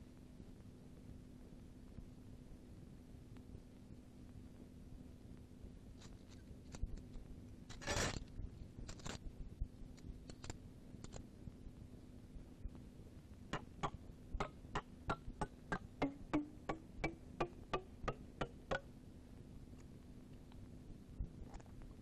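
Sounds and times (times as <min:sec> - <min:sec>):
low steady hum: 0:00.0 - 0:22.0
faint scrapes and clicks: 0:06.0 - 0:09.3, 0:09.9 - 0:11.3
sharp ticks: 0:13.6 - 0:18.9.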